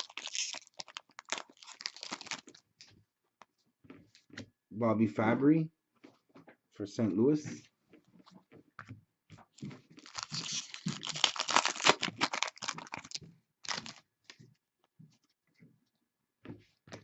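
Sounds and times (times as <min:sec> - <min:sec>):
cards clicking and rustling: 0:00.0 - 0:02.6, 0:10.0 - 0:14.4
wrapper crinkling and tearing: 0:00.0 - 0:02.8, 0:10.0 - 0:14.4.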